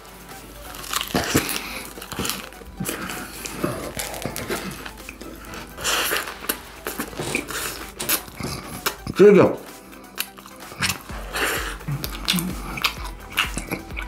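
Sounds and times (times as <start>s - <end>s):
lettuce crunching: 0.0s - 14.0s
wet mouth smacking: 10.1s - 14.0s.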